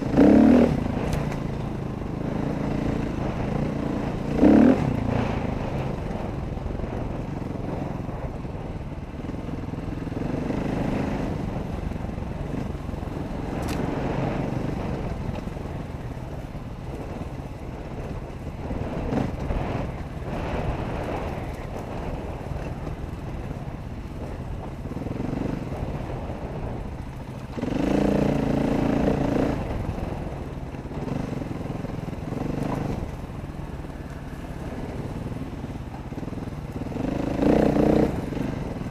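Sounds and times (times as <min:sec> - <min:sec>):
dirt bike engine revving: 0:00.0 - 0:06.3, 0:10.0 - 0:15.2, 0:27.5 - 0:38.9
steady rushing noise: 0:00.0 - 0:38.9.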